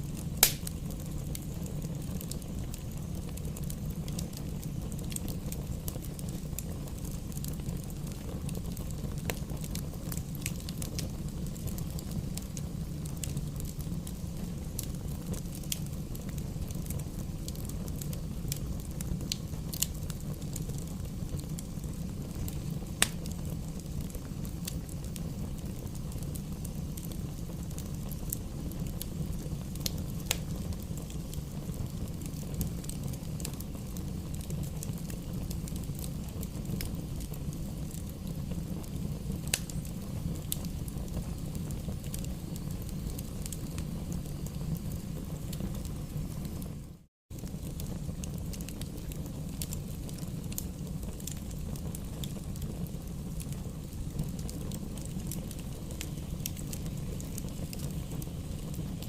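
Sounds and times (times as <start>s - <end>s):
fire crackling in a fireplace: 0.0s - 59.0s
sharp pops of fire: 0.0s - 59.0s.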